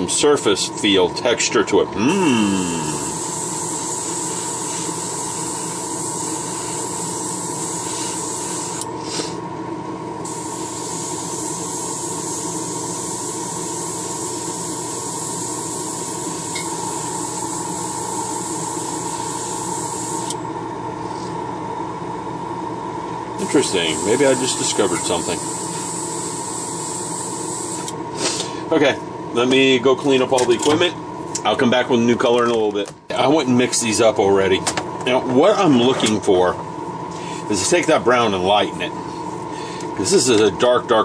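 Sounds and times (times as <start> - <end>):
steady hum: 0.0 - 41.0
airbrush hissing: 2.7 - 9.4, 10.2 - 20.4, 23.4 - 27.9.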